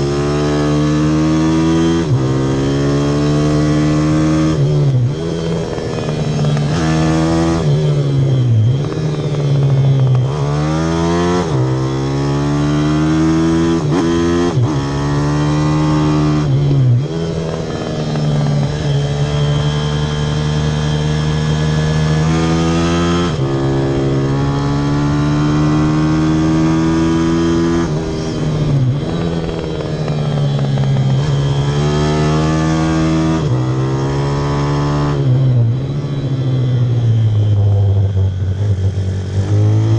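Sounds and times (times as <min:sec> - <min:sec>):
pit bike engine revving: 0:00.0 - 0:37.0.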